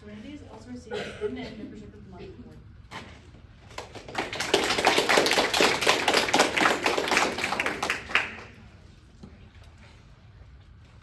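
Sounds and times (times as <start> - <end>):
audience applauding: 3.8 - 8.6.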